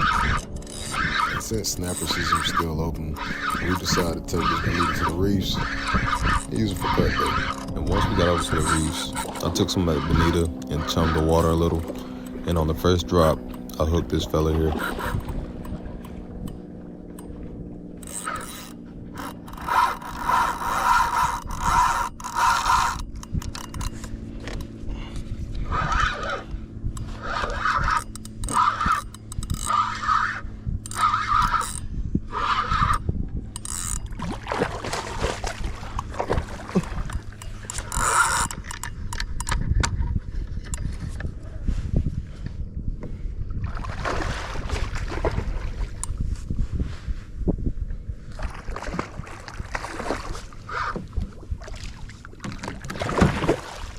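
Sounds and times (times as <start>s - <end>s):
fishing reel buzzing: 0.0s - 36.1s, 37.0s - 41.2s.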